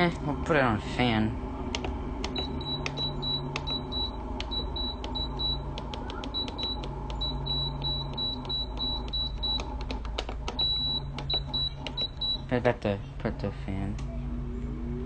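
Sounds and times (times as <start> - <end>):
air conditioner blower hum: 0.0 - 15.0
sharp clicks: 4.4 - 12.3.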